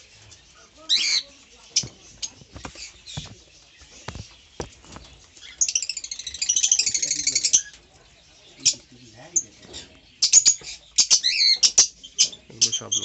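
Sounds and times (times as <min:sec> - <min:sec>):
parrots chirping and clicking: 0:00.0 - 0:13.0.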